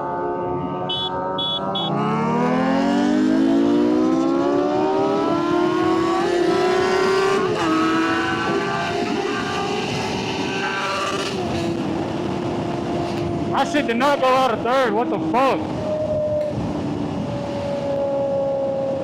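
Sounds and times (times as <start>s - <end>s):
motorcycle engine revving: 0.1s - 14.0s
short high beeps: 0.9s - 2.0s
person speaking: 13.5s - 15.7s.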